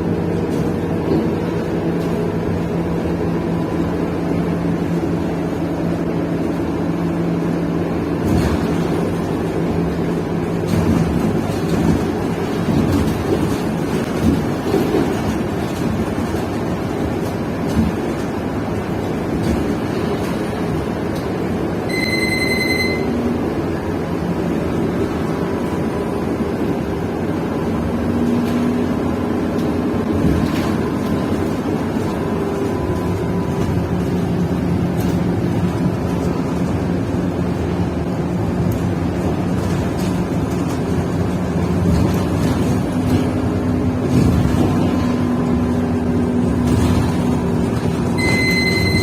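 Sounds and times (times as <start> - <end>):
bus engine droning: 0.0 - 49.0
high electronic beep: 21.9 - 23.2, 48.2 - 49.0.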